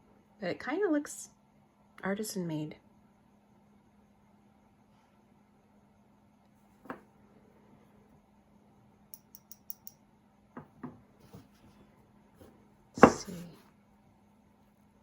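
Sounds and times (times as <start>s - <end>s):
jewelry clicking: 9.1s - 10.0s.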